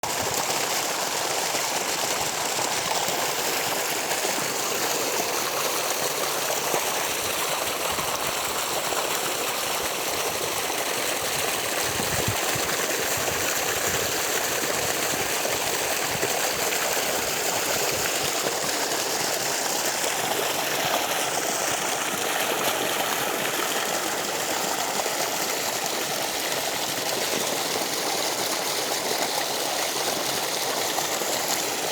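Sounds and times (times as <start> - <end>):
water rushing and splashing: 0.0 - 31.9.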